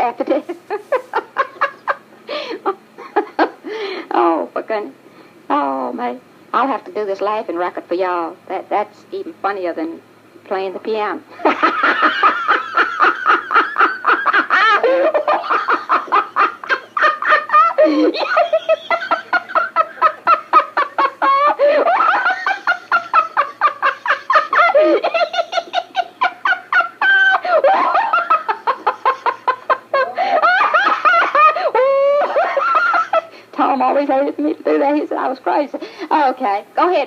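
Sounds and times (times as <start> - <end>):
person laughing: 11.5 - 33.3.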